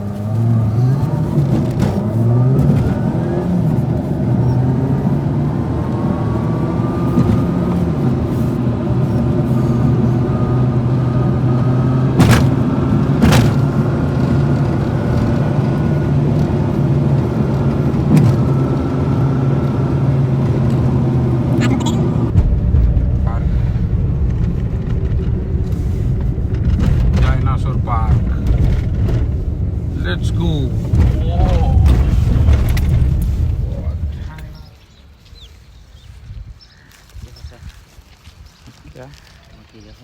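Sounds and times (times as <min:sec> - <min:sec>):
vehicle engine humming: 0:00.0 - 0:40.0
sharp knocks: 0:12.0 - 0:14.4.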